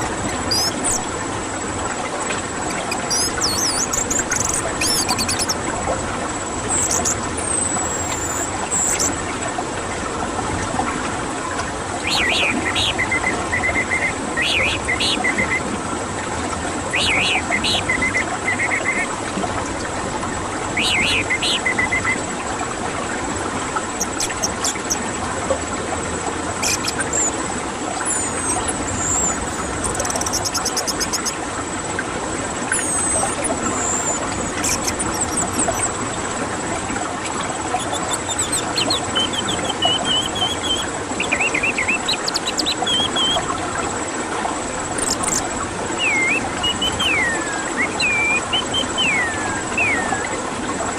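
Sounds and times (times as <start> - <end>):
high thin bird chirps: 0.0 - 1.1, 2.6 - 5.6, 6.7 - 9.2, 12.0 - 15.6, 16.9 - 19.1, 20.8 - 22.1, 24.0 - 25.0, 26.6 - 27.4, 28.0 - 31.4, 32.7 - 36.0, 37.6 - 43.5, 45.0 - 50.3
songbird whistling: 0.3 - 1.1, 2.7 - 5.6, 6.7 - 9.2, 12.0 - 15.6, 16.9 - 19.1, 20.8 - 22.2, 24.0 - 25.0, 26.6 - 27.4, 28.0 - 31.4, 32.7 - 36.0, 37.7 - 43.5, 45.0 - 50.4.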